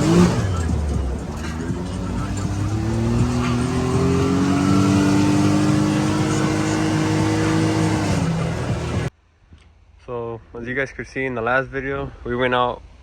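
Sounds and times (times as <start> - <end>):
engine accelerating: 0.0 - 9.1.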